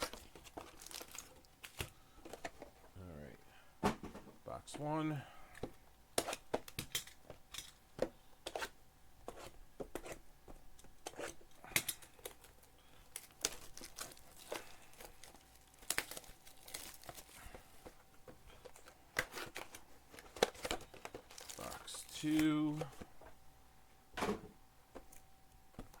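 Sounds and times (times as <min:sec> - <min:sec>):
plastic wrap tearing and crinkling: 0:00.0 - 0:01.9, 0:12.2 - 0:17.5, 0:18.8 - 0:22.4.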